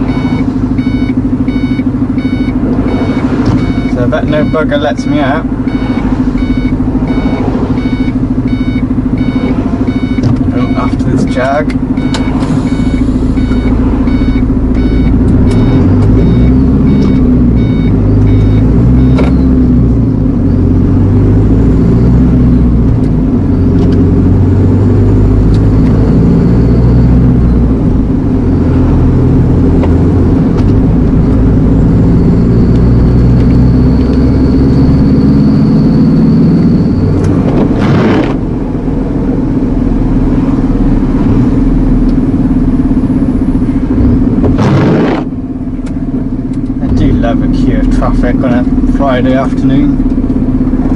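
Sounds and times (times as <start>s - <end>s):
electronic beeps: 0.0s - 19.7s, 31.2s - 37.2s
truck engine revving in cab: 0.0s - 50.9s.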